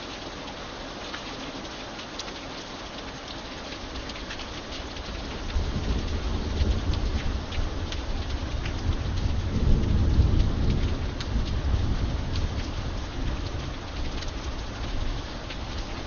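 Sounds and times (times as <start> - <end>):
raindrops ticking: 0.0 - 16.0
steady rain: 0.0 - 16.0
thunder rumbling: 5.4 - 14.5.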